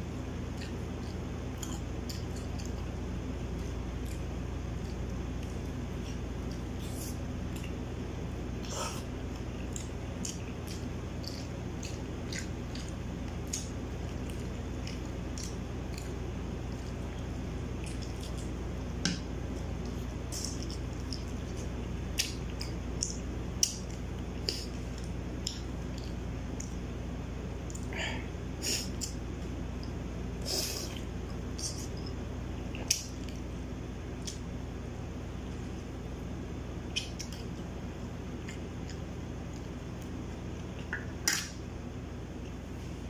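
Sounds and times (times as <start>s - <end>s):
wet squishy chewing: 8.6s - 18.6s.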